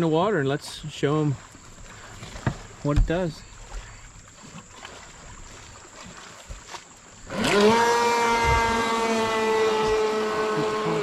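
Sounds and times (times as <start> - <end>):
boat electric motor whine: 7.1 - 11.0.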